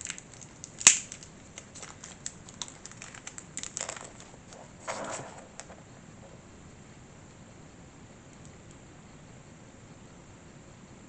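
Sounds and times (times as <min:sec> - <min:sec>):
small parts clicking and rustling: 0:00.0 - 0:04.6.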